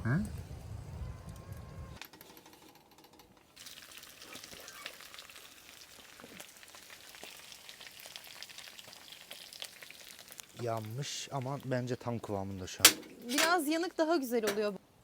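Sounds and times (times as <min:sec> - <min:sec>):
meat sizzling with pops: 0:03.5 - 0:13.5.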